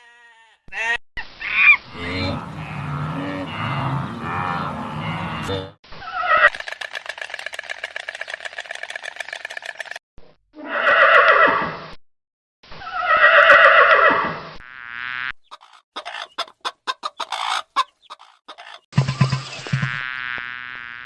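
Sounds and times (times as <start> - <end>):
horse whinnying: 10.6 - 11.6.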